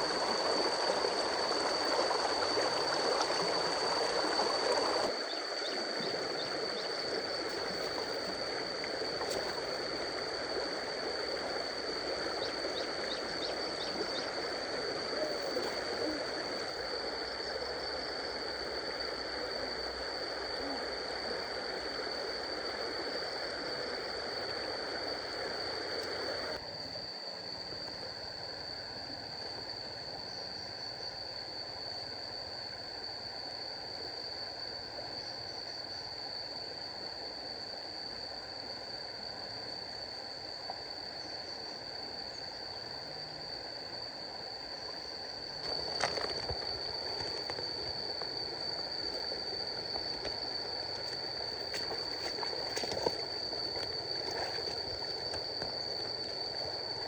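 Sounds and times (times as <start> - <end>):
outdoor ambience: 0.0 - 57.0
stream water running: 0.0 - 57.0.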